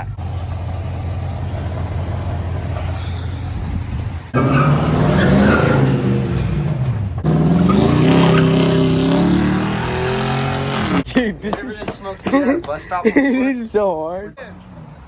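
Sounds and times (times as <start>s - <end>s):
dirt bike engine revving: 4.3s - 11.1s.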